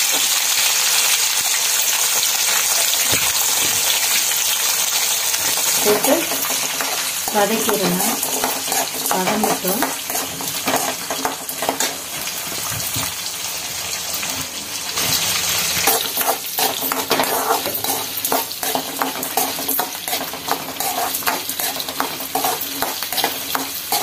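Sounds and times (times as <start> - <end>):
shallots sizzling in hot oil: 0.0 - 24.0
ladle scraping and knocking pan: 5.5 - 12.2, 15.8 - 24.0.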